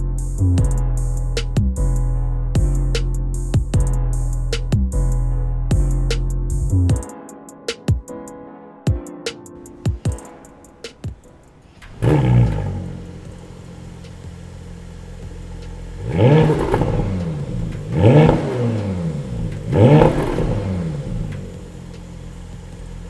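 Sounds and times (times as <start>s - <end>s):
car engine revving and idling: 11.8s - 23.0s.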